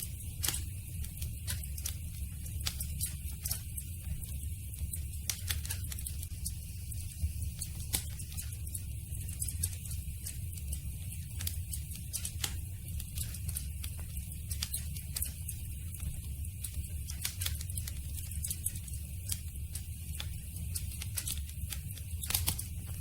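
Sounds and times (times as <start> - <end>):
campfire crackling: 0.1 - 23.0.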